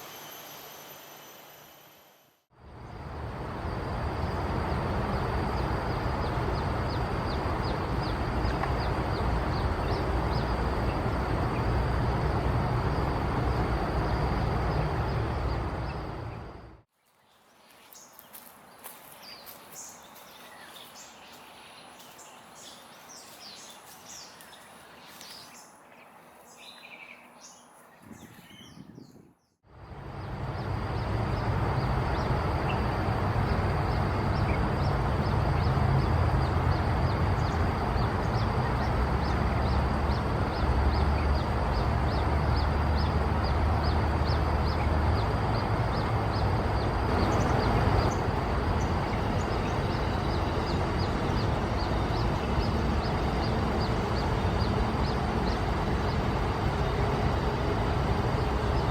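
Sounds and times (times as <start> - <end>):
steady noise with low rumble: 0.0 - 16.9, 29.7 - 58.9
birds chirping: 3.8 - 58.9.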